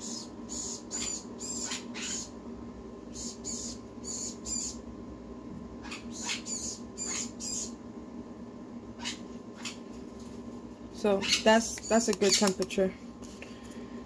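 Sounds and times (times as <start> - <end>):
parrot chick cheeping: 0.0 - 2.3, 3.1 - 4.8, 5.8 - 7.8
steady low hum: 0.0 - 14.0.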